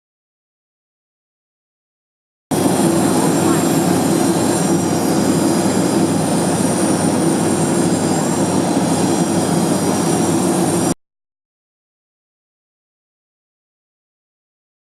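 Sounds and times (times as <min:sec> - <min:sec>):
jet engines rushing and whining: 0:02.5 - 0:11.0.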